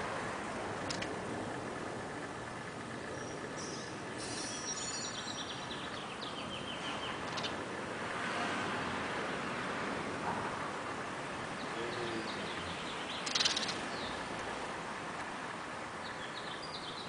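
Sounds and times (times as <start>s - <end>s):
outdoor background hiss: 0.0s - 17.0s
small bird chirping: 0.8s - 1.6s, 3.0s - 7.7s, 11.6s - 14.4s, 16.0s - 17.0s.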